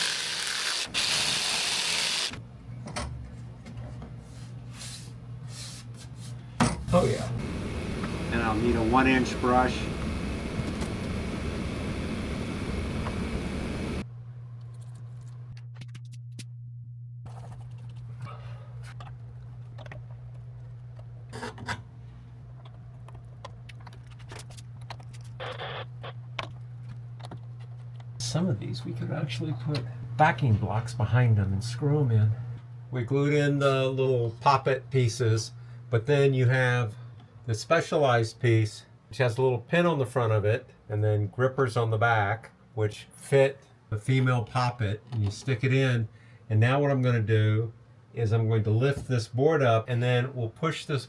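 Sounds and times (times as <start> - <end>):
power saw cutting: 0.0 - 2.4
low steady hum: 2.4 - 24.0, 26.0 - 39.7.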